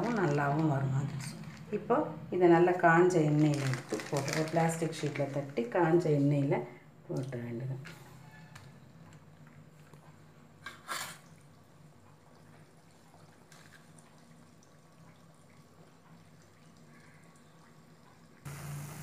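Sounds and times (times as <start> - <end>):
dough bubbling in oil: 11.3 - 19.0.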